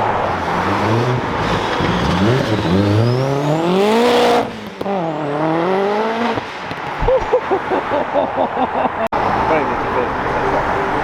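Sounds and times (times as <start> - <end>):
car engine accelerating: 0.0 - 6.9.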